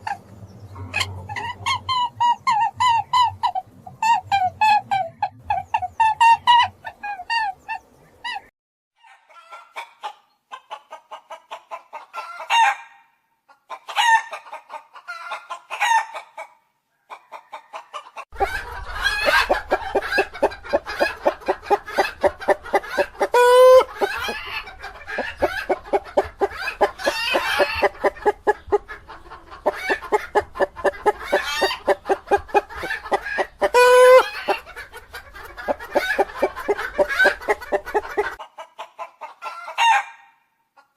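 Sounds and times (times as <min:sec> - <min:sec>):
loud high chicken calls: 0:00.0 - 0:09.9, 0:17.1 - 0:38.4, 0:39.0 - 0:40.4
chickens clucking: 0:00.0 - 0:12.7, 0:13.5 - 0:40.0.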